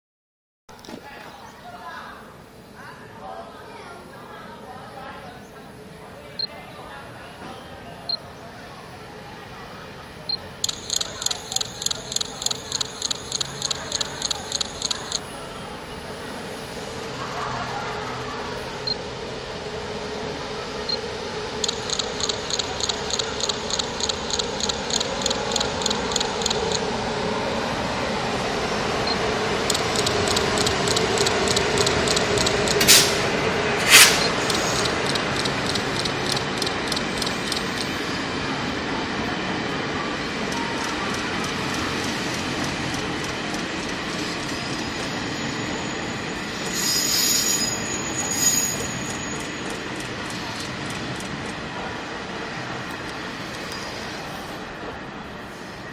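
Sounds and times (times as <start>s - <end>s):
train rumble with wheels clicking: 0.7s - 55.9s
loud sharp cracks: 32.8s - 34.3s
high-pitched brake squeal: 33.8s - 34.9s, 44.4s - 50.5s.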